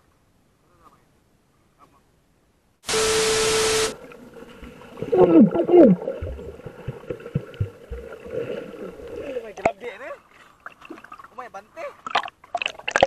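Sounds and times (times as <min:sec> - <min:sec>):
tv static with steady beep: 0:02.8 - 0:04.0
muffled water sloshing: 0:04.0 - 0:13.0.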